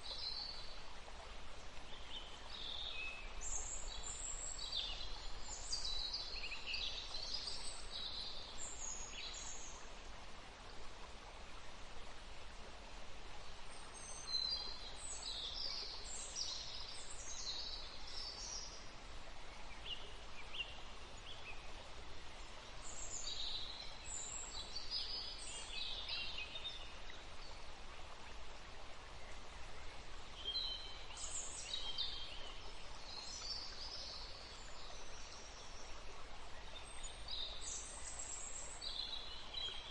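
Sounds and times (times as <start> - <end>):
forest stream running: 0.0 - 39.9
songbirds singing: 29.1 - 39.9.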